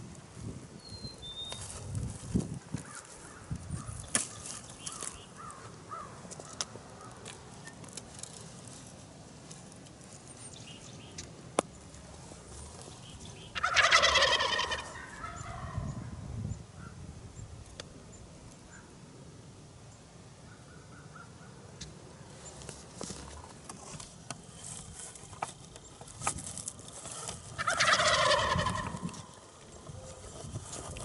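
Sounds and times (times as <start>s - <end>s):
turkey gobbling: 13.4s - 15.9s, 27.5s - 30.3s.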